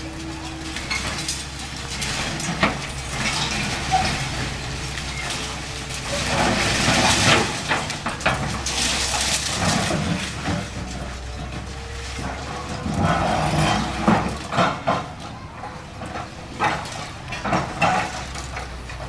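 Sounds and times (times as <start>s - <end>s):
excavator diesel engine running: 0.0s - 19.0s
rubble crunching and crashing: 0.0s - 19.0s.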